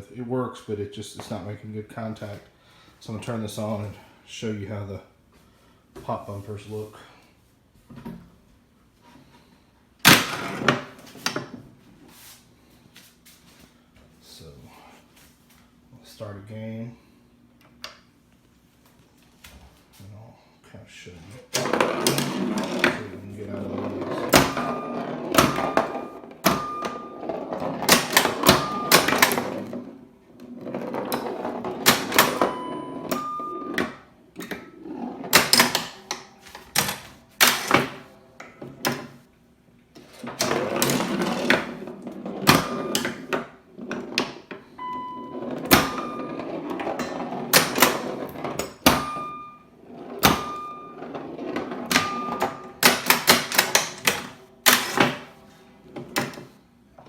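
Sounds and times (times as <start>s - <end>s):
pinball bumpers and flippers clacking: 10.0s - 11.6s, 21.5s - 39.2s, 40.0s - 57.0s
pinball rolling and rattling: 10.1s - 11.4s, 21.5s - 39.2s, 40.0s - 55.3s
short electronic beeps: 44.8s - 46.4s, 49.0s - 49.7s, 50.4s - 51.0s.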